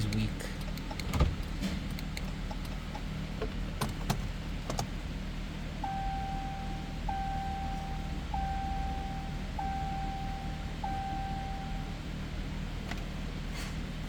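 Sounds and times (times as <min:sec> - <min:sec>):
low steady hum: 0:00.0 - 0:14.0
dashboard warning chime: 0:05.8 - 0:12.2.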